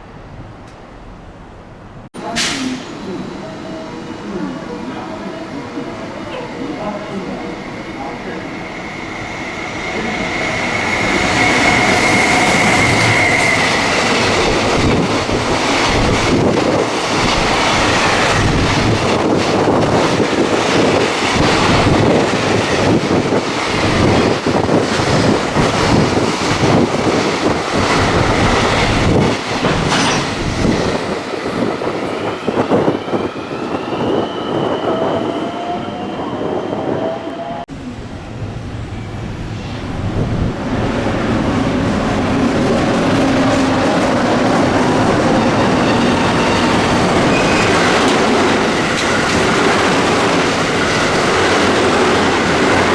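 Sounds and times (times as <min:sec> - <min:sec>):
electric train passing: 0:02.1 - 0:52.9
steady high squeal: 0:02.6 - 0:15.0, 0:38.4 - 0:49.3.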